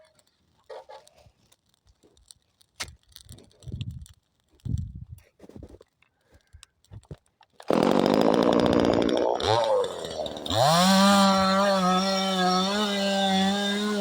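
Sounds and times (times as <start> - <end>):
chainsaw starting and revving: 7.6 - 14.0.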